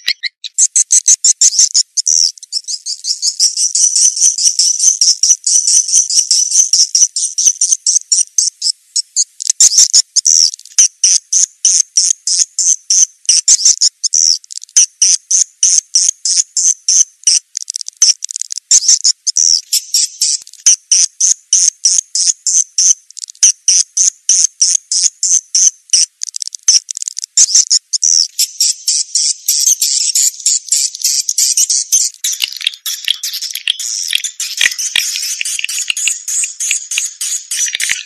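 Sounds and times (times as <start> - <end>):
rapid high-pitched bird chirps: 0.0 - 38.0.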